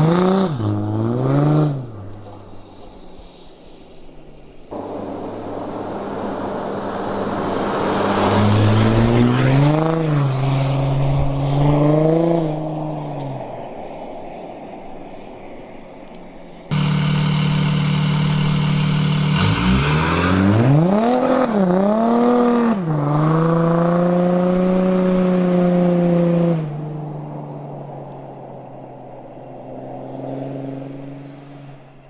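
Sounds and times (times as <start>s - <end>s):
diesel car engine revving: 4.7s - 13.4s, 16.7s - 31.9s.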